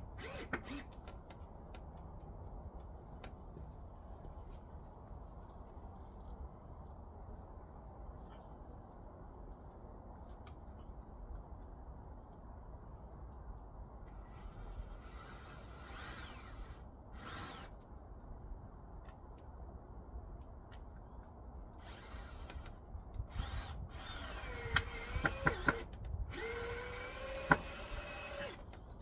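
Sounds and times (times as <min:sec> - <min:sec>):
power drill driving screws: 0:00.2 - 0:01.0, 0:14.2 - 0:17.8, 0:21.8 - 0:28.8.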